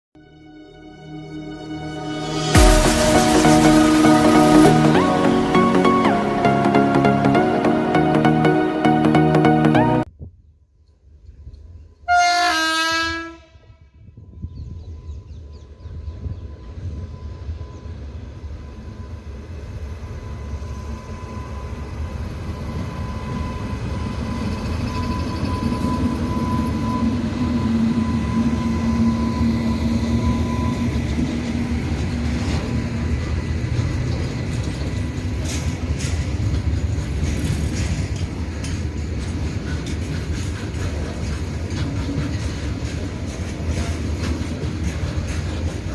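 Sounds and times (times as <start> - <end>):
train rumbling past: 0.2 - 9.1, 11.2 - 45.9
steady whine: 0.2 - 9.7
locomotive horn: 0.2 - 10.0, 12.0 - 13.9
wheels clicking over rail joints: 31.1 - 45.9.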